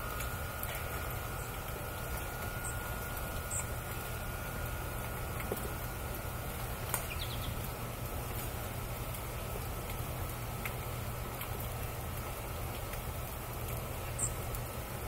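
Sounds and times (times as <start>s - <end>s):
outdoor hiss: 0.0s - 15.0s
small birds chirping: 0.2s - 4.2s, 6.9s - 7.9s, 14.0s - 14.5s.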